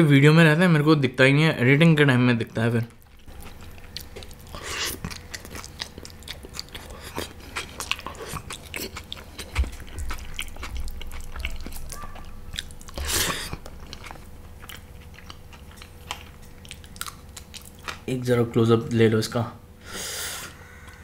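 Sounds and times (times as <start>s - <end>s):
chewing and biting food: 2.9s - 18.1s.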